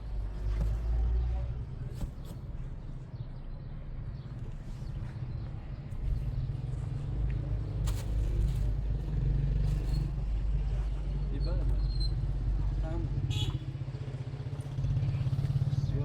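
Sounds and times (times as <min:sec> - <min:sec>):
motor vehicle rumble: 0:00.0 - 0:16.0.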